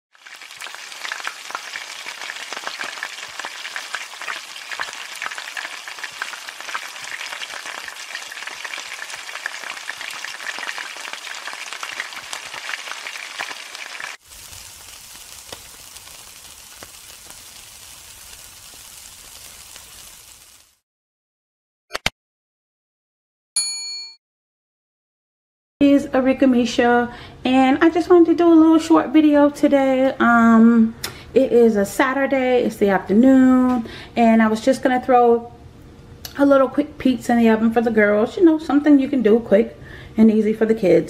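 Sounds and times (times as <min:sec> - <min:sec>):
food frying in a wok: 0:00.1 - 0:20.8
meat skewers sizzling on a grill: 0:00.1 - 0:20.8.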